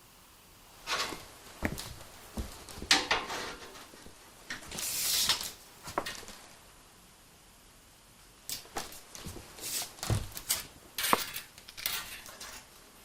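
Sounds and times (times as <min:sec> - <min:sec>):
parts knocking and clunking: 0:00.9 - 0:04.7.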